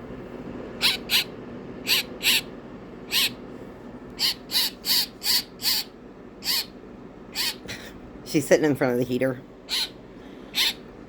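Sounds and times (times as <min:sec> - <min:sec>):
baby bird raspy calls: 0:00.8 - 0:02.5, 0:03.1 - 0:03.4, 0:04.2 - 0:07.7, 0:09.7 - 0:10.9.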